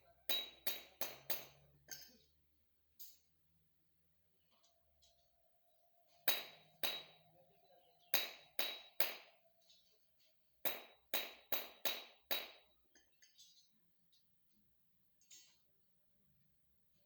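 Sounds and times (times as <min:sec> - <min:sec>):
sharp knocks with metallic ring: 0:00.3 - 0:02.2, 0:06.3 - 0:07.4, 0:08.0 - 0:09.4, 0:10.6 - 0:13.3.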